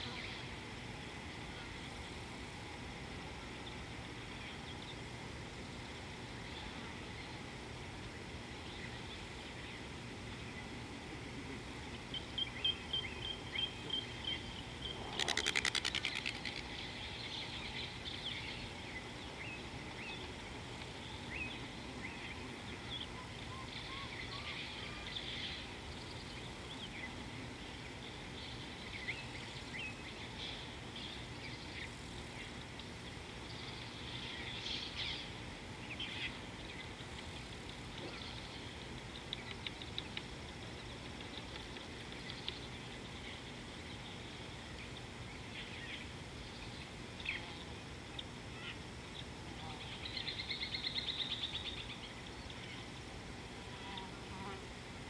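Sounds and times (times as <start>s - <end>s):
wild birds chirping: 0.0s - 2.4s, 3.1s - 55.0s
outdoor background noise: 0.0s - 55.0s
bird rapid rattle call: 14.9s - 16.8s.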